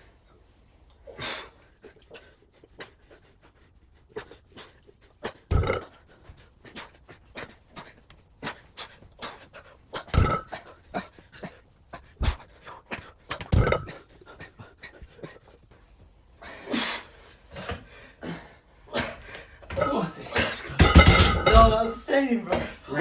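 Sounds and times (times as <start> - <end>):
person breathing hard: 0.0 - 19.7.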